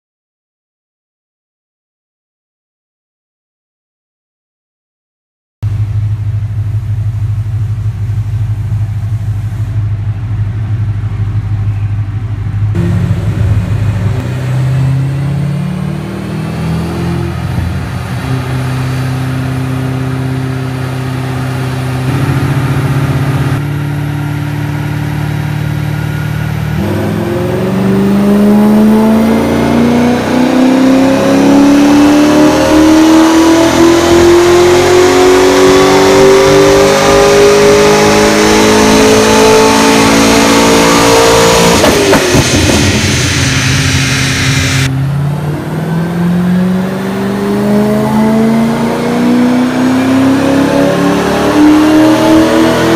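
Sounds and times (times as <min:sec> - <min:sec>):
car engine revving on dyno: 0:12.7 - 0:52.9.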